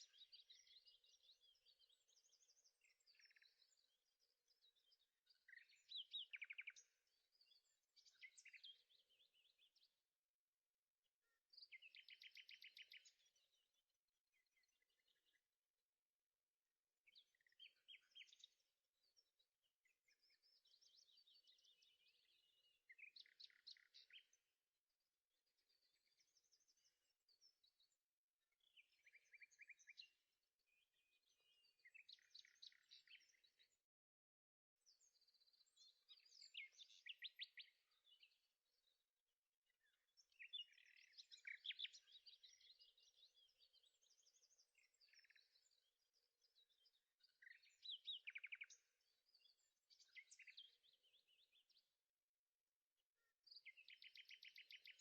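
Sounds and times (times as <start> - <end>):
faint birdsong chirps and trills: 0.0 - 55.0.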